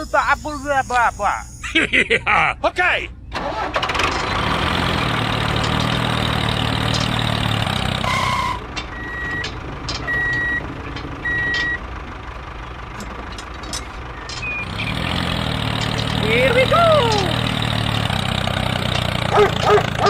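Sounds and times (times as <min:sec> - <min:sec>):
reversing alarm beeps: 0:00.0 - 0:01.8, 0:08.1 - 0:11.8, 0:14.2 - 0:14.7
truck engine running: 0:00.0 - 0:20.0.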